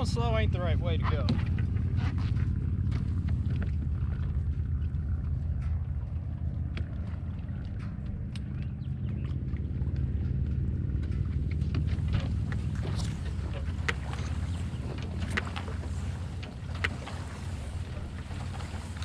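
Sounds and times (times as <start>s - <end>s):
boat motor running: 0.0s - 19.0s
light clicks: 4.7s - 10.3s.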